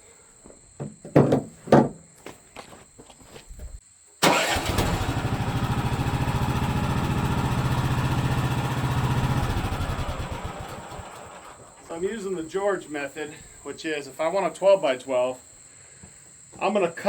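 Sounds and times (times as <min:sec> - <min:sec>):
small gasoline engine running: 0:04.2 - 0:11.8.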